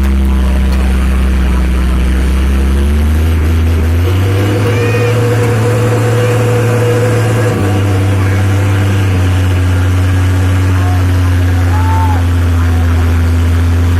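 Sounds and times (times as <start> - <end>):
dump truck engine running: 0.0 - 13.9.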